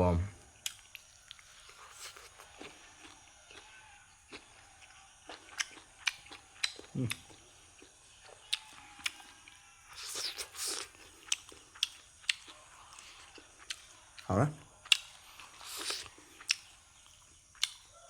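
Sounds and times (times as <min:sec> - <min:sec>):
crunchy chewing: 0:00.4 - 0:18.0
crunching or slurping burst: 0:10.0 - 0:11.0.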